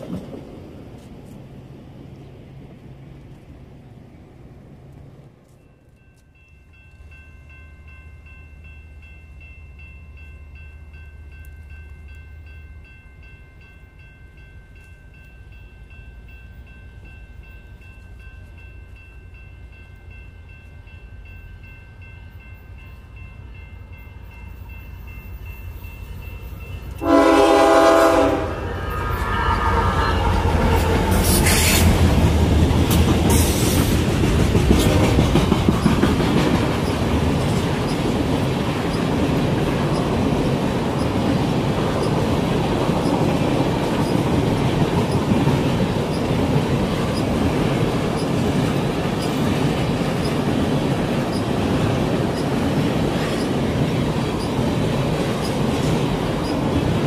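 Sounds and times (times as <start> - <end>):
freight train rumbling and clattering: 0.0 - 5.6, 16.2 - 57.0
locomotive air horn blast: 27.0 - 30.3.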